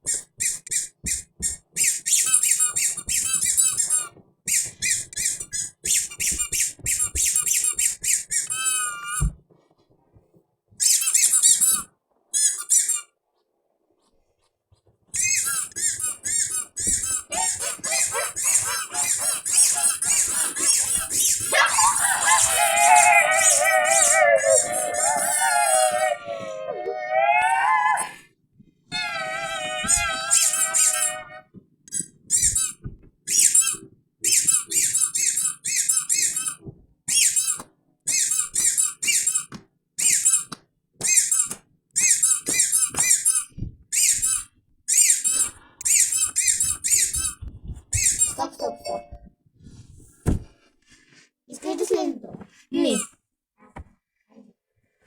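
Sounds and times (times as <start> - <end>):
high-pitched squeaky chirps: 0.0 - 9.3, 10.8 - 13.1, 15.2 - 28.2, 28.9 - 40.5, 41.1 - 47.4, 48.0 - 49.2.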